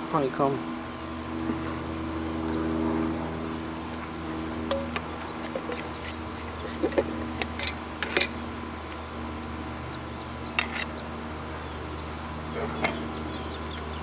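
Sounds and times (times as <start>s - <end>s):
honeybees humming: 0.0s - 14.0s
clicks and scrapes of hive frames: 3.9s - 9.1s, 10.5s - 11.3s, 12.6s - 13.1s.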